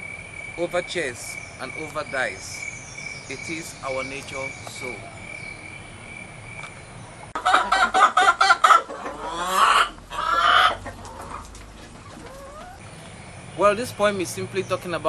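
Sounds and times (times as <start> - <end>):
chicken clucking: 7.4 - 13.2.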